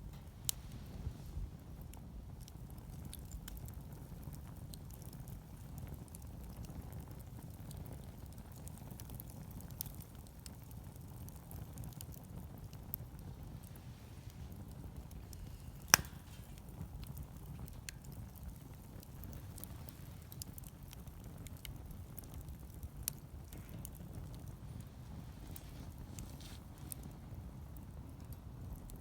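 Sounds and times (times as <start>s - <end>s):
campfire crackling: 0.0s - 29.0s
sharp fire pop: 14.4s - 20.7s.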